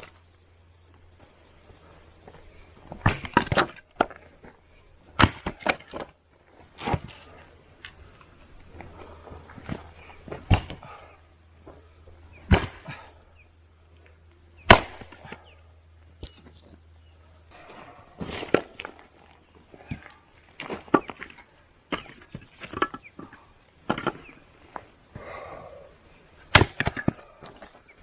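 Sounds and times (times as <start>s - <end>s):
axe chopping firewood: 2.8s - 6.2s, 6.8s - 7.4s, 9.6s - 11.1s, 12.4s - 13.2s, 14.6s - 15.5s, 18.2s - 19.0s, 21.9s - 23.3s, 23.9s - 24.3s, 26.5s - 27.8s.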